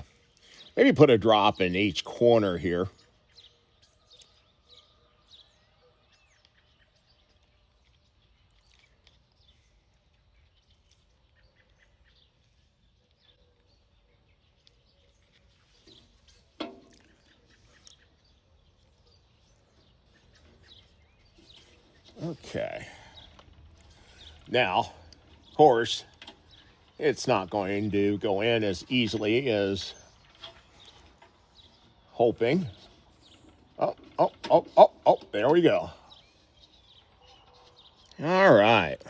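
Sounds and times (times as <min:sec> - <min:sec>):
faint bird chirps: 0:29.8 - 0:39.0.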